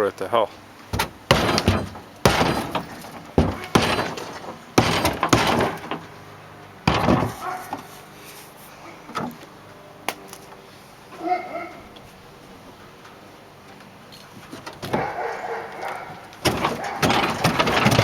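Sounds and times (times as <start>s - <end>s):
wood breaking with bangs and cracks: 0.9s - 6.2s, 6.8s - 7.8s, 16.3s - 18.0s.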